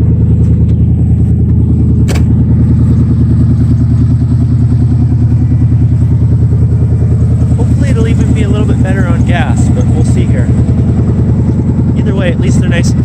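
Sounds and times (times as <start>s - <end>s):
engine idling: 0.0s - 13.0s
sharp click: 2.0s - 2.3s.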